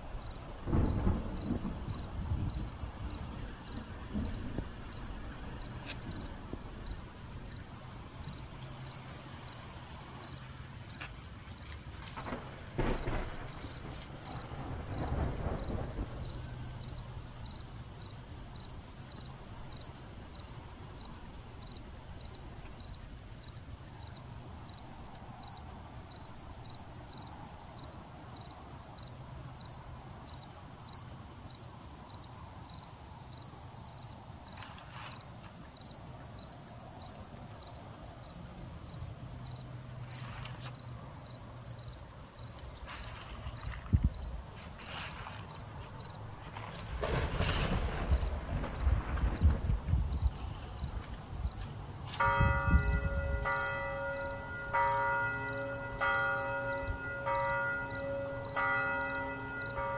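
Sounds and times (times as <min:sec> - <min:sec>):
cricket chirping: 0:00.0 - 0:59.9
high insect trill: 0:00.0 - 0:59.9
low rumbling thud: 0:00.6 - 0:06.9.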